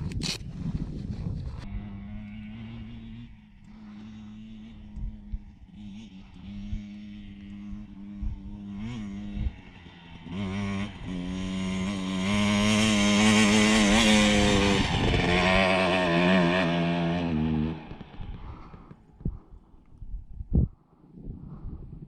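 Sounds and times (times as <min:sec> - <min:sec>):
dirt bike engine running: 0:00.8 - 0:19.5.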